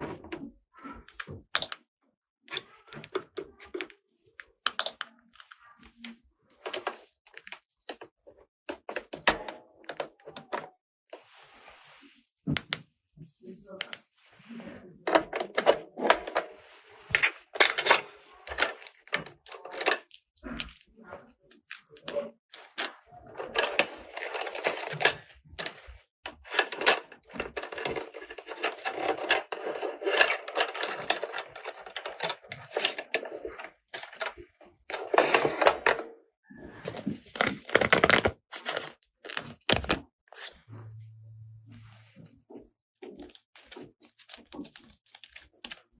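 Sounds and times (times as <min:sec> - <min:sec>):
plastic toy parts clicking: 0:17.2 - 0:20.9, 0:26.4 - 0:36.0.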